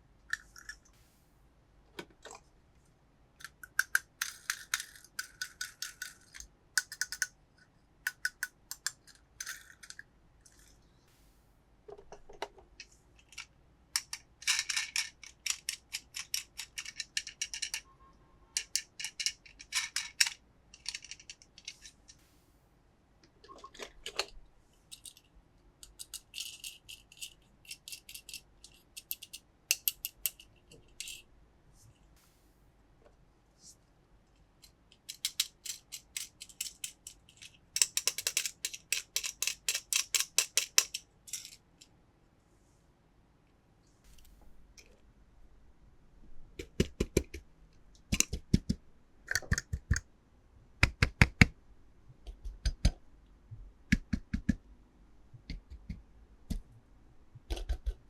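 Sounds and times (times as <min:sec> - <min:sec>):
toy cars clicking and rattling: 0:03.4 - 0:07.3, 0:08.1 - 0:10.7, 0:13.2 - 0:17.8, 0:18.6 - 0:22.0, 0:24.9 - 0:31.2, 0:34.6 - 0:41.6.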